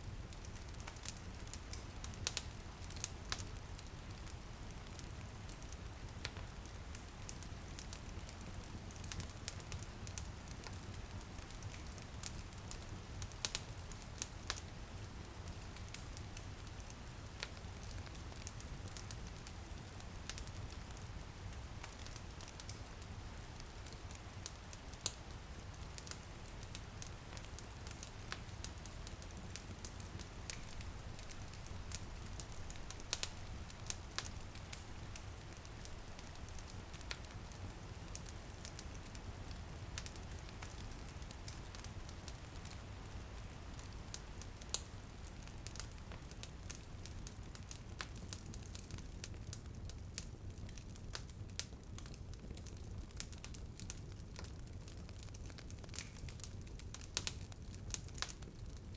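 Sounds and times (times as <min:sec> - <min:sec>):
wood fire crackling and popping: 0:00.1 - 0:58.9.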